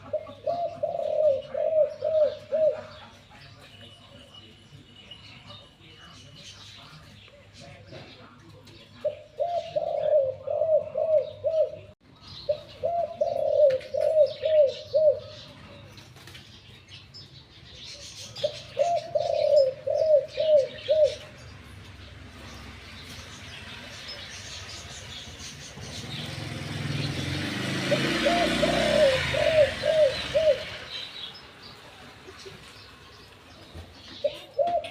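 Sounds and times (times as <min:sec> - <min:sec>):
dove cooing: 0:00.0 - 0:03.2, 0:09.0 - 0:15.6, 0:18.1 - 0:21.4, 0:24.6 - 0:31.1, 0:34.1 - 0:34.9.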